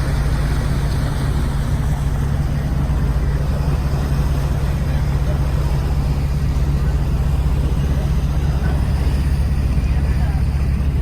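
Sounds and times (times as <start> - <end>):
ferry engine droning: 0.0 - 11.0.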